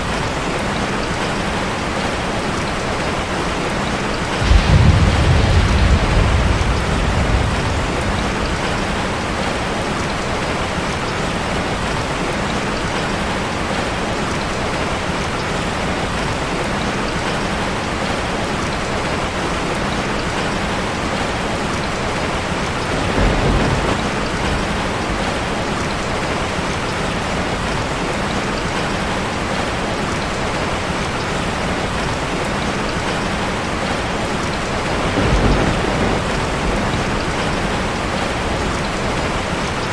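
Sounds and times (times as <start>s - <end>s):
rain on a metal roof: 0.0s - 39.9s
low rumbles: 4.4s - 9.8s.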